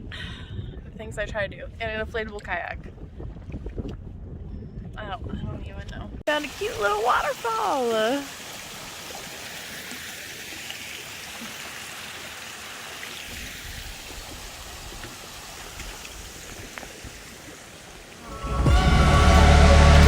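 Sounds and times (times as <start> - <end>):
small waterfall splashing: 6.3 - 18.3
loud music: 18.3 - 20.0
low rumble: 18.3 - 20.0.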